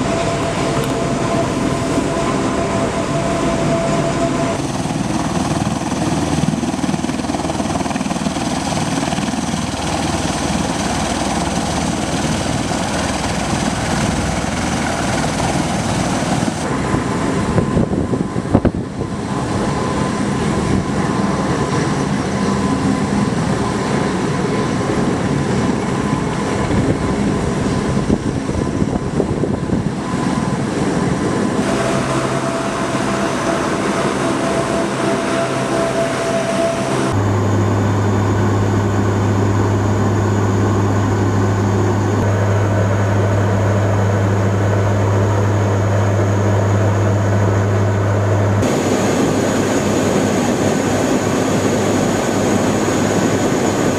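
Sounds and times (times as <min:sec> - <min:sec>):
aircraft engines droning: 0:00.0 - 0:53.9
strong low hum: 0:26.7 - 0:53.9.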